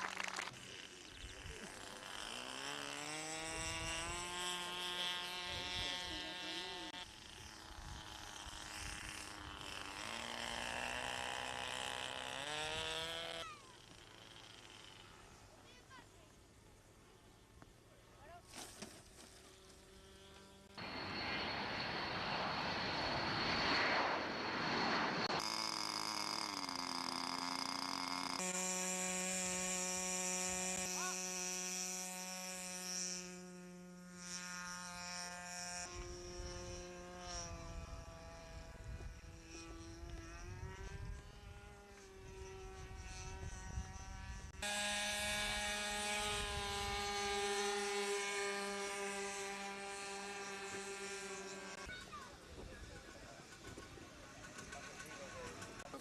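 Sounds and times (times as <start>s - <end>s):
model airplane engines: 0.0s - 56.0s.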